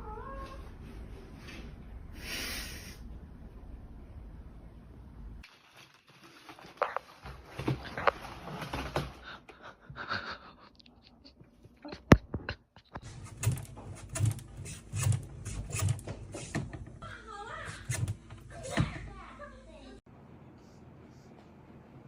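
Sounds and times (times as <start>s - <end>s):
rustling: 5.4s - 9.4s.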